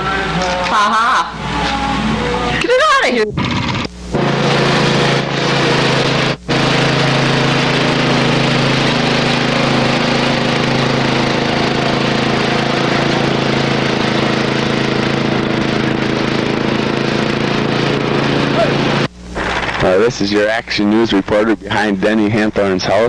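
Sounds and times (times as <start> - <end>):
steady mechanical hum with hiss: 0.0 - 23.0.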